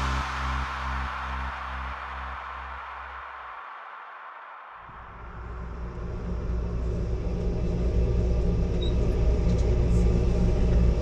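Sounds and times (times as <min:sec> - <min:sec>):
diesel train rumbling: 0:05.0 - 0:11.0.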